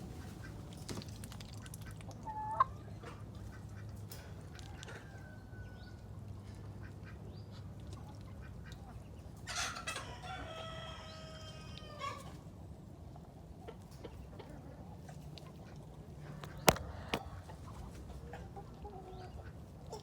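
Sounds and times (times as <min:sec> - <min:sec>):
rooster crowing: 0:10.0 - 0:12.2.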